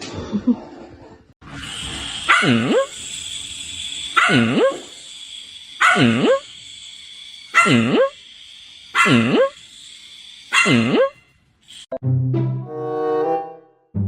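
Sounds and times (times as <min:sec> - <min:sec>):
dog barking drawn-out: 0:02.2 - 0:02.9, 0:04.1 - 0:04.9, 0:05.8 - 0:06.4, 0:07.5 - 0:08.2, 0:08.9 - 0:09.6, 0:10.5 - 0:11.1.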